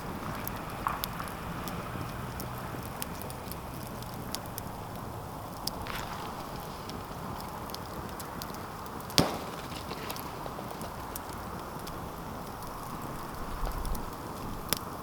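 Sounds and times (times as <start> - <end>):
campfire crackling: 0.0 - 15.0
loud sharp crack of fire: 0.0 - 15.0.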